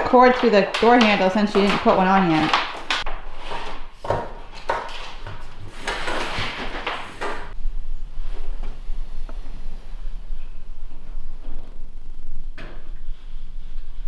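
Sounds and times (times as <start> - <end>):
extension cord clunking and scraping: 0.0 - 7.6
low steady hum: 7.5 - 14.0.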